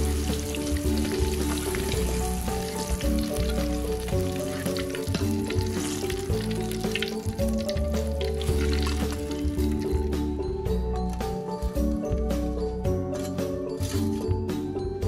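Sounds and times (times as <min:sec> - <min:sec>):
vegetables sizzling in hot oil: 0:00.0 - 0:09.8
background music with bass: 0:00.0 - 0:15.0.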